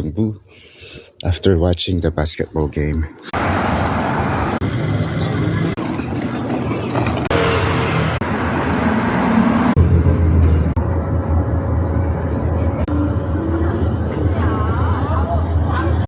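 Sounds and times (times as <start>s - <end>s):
road vehicle rumble and hiss: 3.3s - 16.0s.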